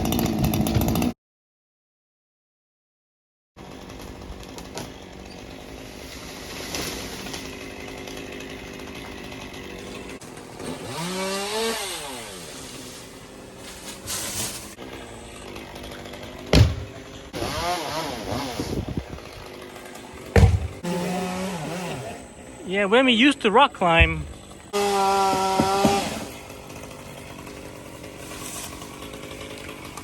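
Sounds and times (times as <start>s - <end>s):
chainsaw revving: 0.0s - 1.2s, 3.6s - 30.0s
sharp thump: 16.5s - 16.9s, 20.3s - 20.8s.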